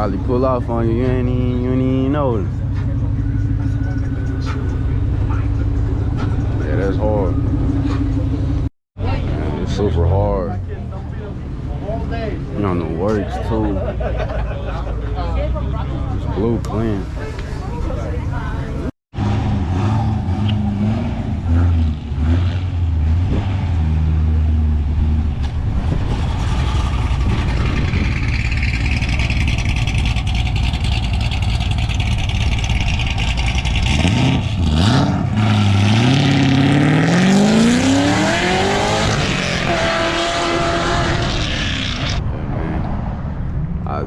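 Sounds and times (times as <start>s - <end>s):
car engines rumbling: 0.0s - 44.0s
engine revving up: 19.1s - 25.2s, 25.8s - 43.2s.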